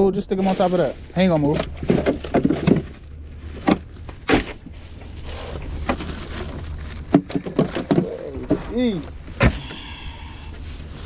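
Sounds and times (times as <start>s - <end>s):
steady low rumble: 0.0s - 11.0s
knocks and thumps: 1.5s - 3.0s, 7.0s - 9.8s.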